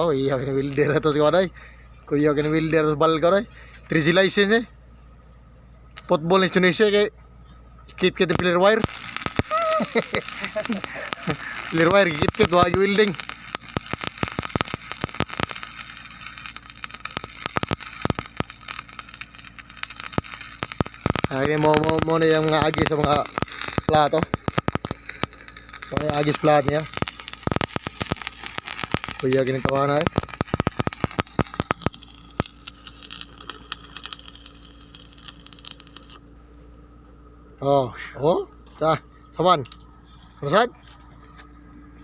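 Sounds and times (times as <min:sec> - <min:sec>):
welding arc crackling: 0:08.1 - 0:36.2
welding arc popping: 0:08.1 - 0:36.3.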